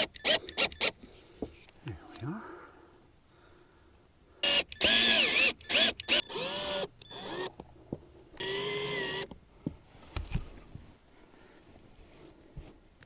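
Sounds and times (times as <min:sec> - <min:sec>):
power drill driving screws: 0:00.0 - 0:01.0, 0:04.4 - 0:07.5, 0:08.4 - 0:09.3.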